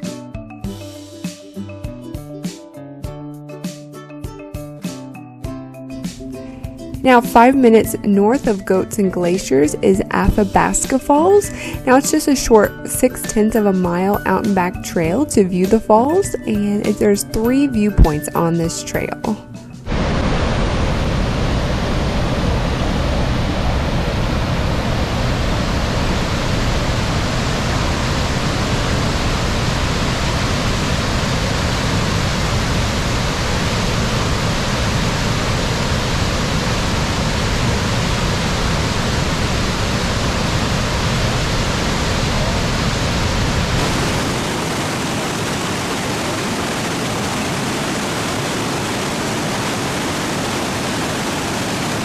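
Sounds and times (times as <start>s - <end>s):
waterfall rushing: 19.9s - 52.0s.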